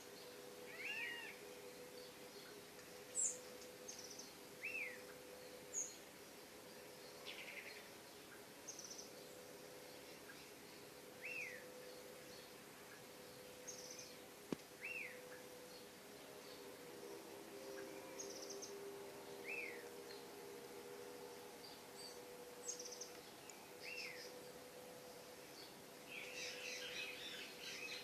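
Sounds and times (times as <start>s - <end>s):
faint steady hum: 0.0s - 28.0s
birds whistling and chirping: 0.7s - 2.5s, 3.1s - 6.0s, 11.2s - 12.5s, 14.8s - 15.9s, 19.4s - 19.9s, 22.0s - 24.4s, 26.1s - 28.0s.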